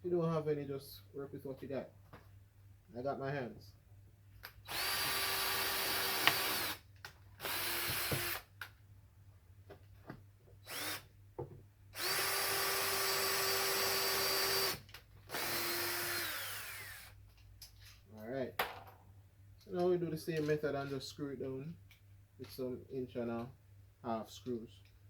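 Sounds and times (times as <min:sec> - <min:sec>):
power drill drilling: 0:04.7 - 0:06.8, 0:07.4 - 0:08.5, 0:10.6 - 0:11.1, 0:12.0 - 0:17.2.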